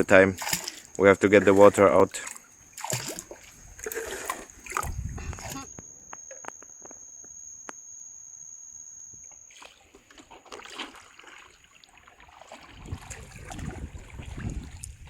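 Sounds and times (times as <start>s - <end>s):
water splashing around boat: 0.0s - 5.7s, 9.3s - 15.0s
high-pitched whine: 4.7s - 10.2s.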